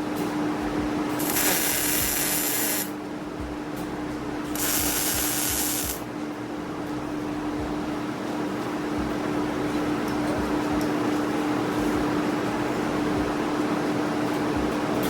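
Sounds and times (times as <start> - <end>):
machine hum: 0.0 - 15.0
welding hissing and crackling: 1.2 - 3.0, 4.5 - 6.1.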